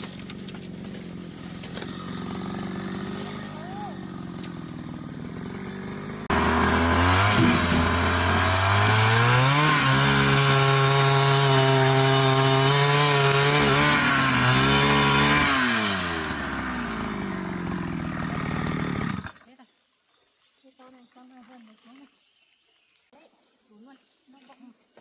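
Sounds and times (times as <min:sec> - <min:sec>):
chainsaw revving: 0:00.0 - 0:19.4.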